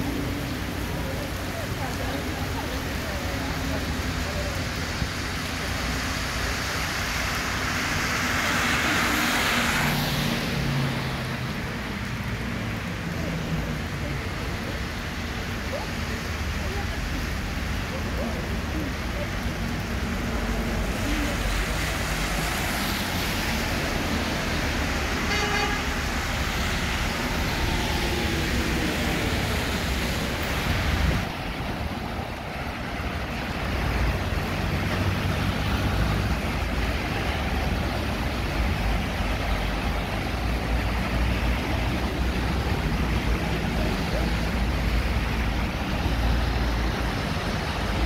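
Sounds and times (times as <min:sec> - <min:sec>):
heavy rain on street: 0:00.0 - 0:48.0
vehicles driving through water: 0:00.0 - 0:48.0
vehicle horn toot: 0:25.3 - 0:25.9.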